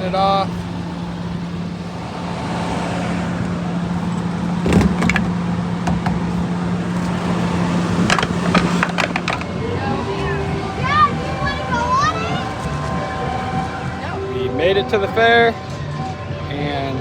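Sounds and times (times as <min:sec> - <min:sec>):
low mechanical hum: 0:00.0 - 0:16.5
vehicle noise: 0:00.0 - 0:17.0
sharp clicks or clunks: 0:03.4 - 0:10.5.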